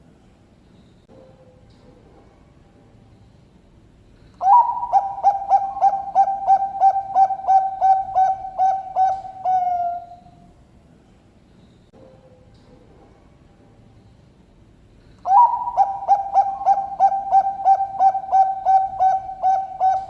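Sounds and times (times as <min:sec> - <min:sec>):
dove cooing: 0:04.4 - 0:10.5, 0:15.2 - 0:20.0.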